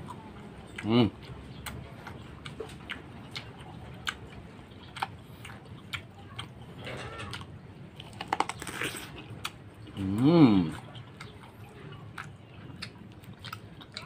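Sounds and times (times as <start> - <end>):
chewing with wet clicks and smacks: 0.0 - 14.0.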